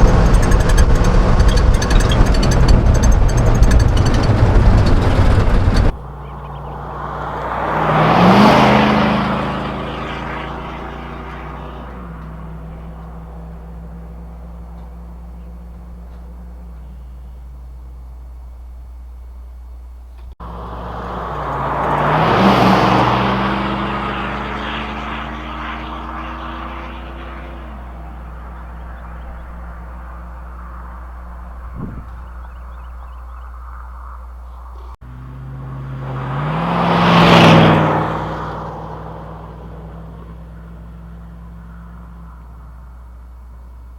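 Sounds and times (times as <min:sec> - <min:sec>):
engine exhaust rumbling: 0:00.0 - 0:07.7, 0:08.8 - 0:35.5
vehicle driving past: 0:00.0 - 0:17.4, 0:20.4 - 0:42.9.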